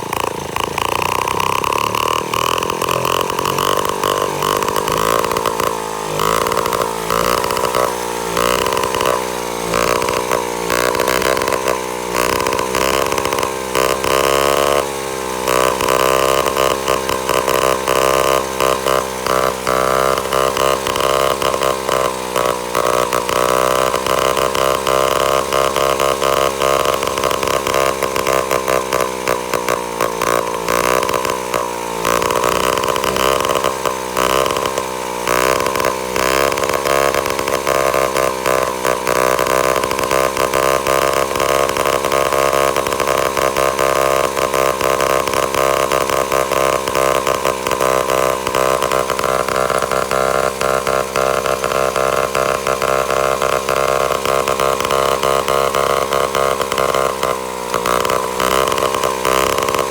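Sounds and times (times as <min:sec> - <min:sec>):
engine running with gearbox: 0:00.0 - 0:59.9.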